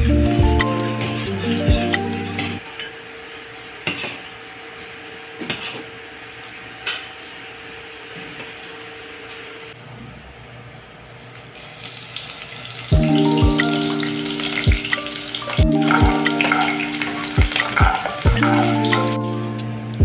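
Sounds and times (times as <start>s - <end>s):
meat sizzling in hot oil: 11.2s - 18.9s.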